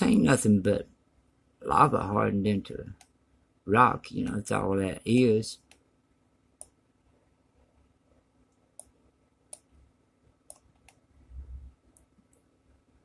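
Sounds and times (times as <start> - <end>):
computer mouse clicks: 6.6 - 6.8, 8.5 - 9.7, 10.5 - 11.0, 11.9 - 12.5.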